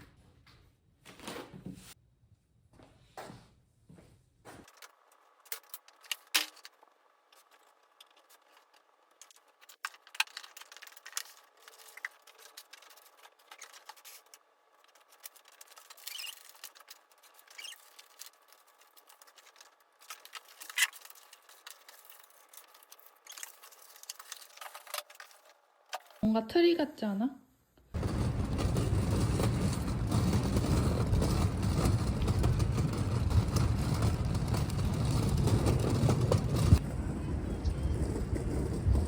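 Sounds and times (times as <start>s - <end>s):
paper and packaging rustling: 4.7s - 26.2s.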